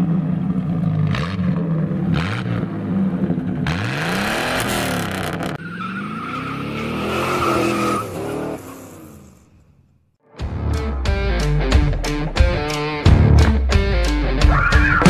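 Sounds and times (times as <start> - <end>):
car engines revving: 0.0 - 9.6, 10.5 - 15.0
tyre squeal: 5.4 - 9.4, 14.4 - 15.0.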